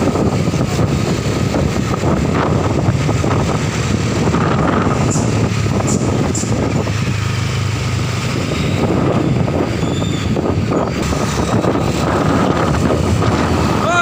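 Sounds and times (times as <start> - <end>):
truck engine humming: 0.0 - 14.0.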